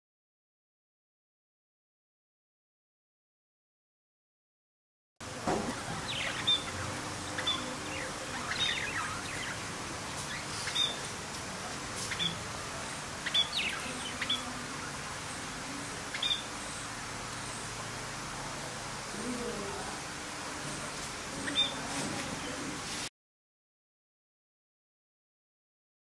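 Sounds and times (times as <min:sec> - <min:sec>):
birds chirping: 0:05.2 - 0:22.8
steady background hiss: 0:05.2 - 0:23.1.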